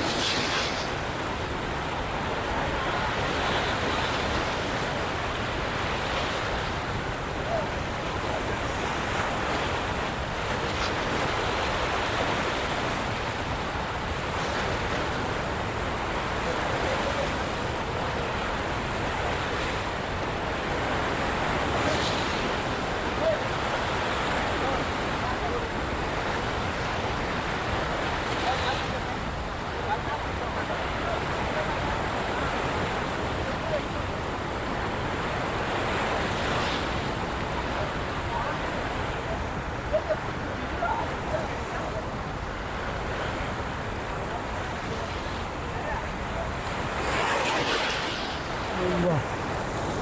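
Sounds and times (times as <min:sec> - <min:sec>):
water rushing through spillway: 0:00.0 - 0:50.0.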